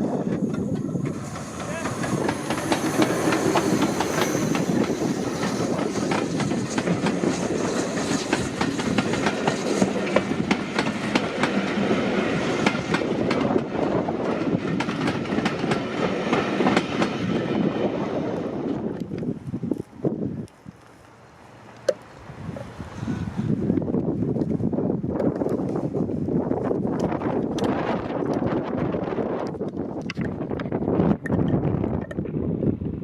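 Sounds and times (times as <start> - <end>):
wheels clattering over rail joints: 0.0 - 17.3
train rumbling past: 0.0 - 20.4.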